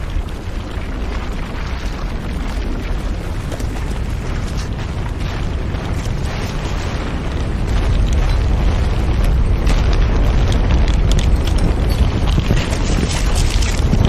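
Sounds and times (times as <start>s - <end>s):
crackles and knocks: 0.0s - 14.0s
deep earthquake rumble: 0.0s - 14.0s.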